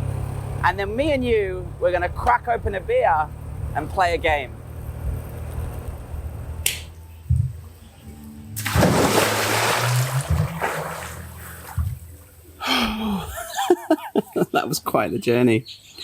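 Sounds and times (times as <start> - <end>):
background music: 6.8 - 12.2
loud splash in pool: 8.6 - 12.0.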